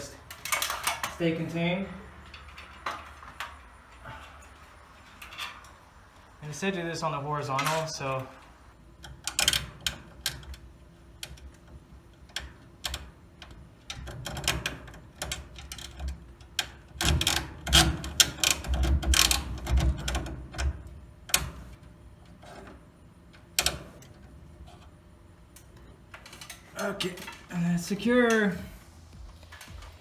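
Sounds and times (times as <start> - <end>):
metal hardware clicking: 0.0 - 5.8, 7.5 - 21.5
clatter and low thumps: 28.7 - 30.0.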